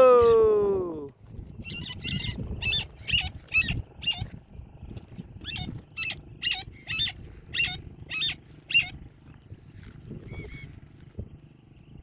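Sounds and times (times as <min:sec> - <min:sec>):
parrot calling: 0:01.6 - 0:04.3, 0:05.4 - 0:09.0, 0:10.2 - 0:10.8.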